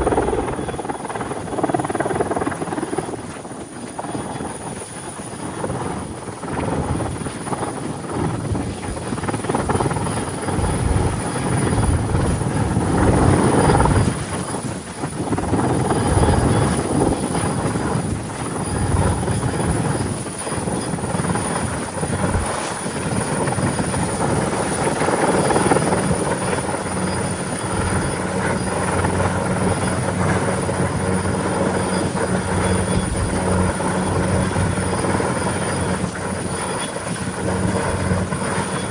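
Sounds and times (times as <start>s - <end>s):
steady high whine: 0.0s - 3.2s, 15.3s - 38.9s
helicopter rotor and engine: 0.0s - 38.9s.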